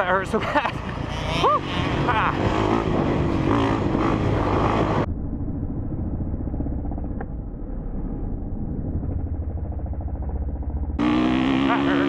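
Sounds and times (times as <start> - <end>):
motorcycle engine idling: 5.0 - 11.7.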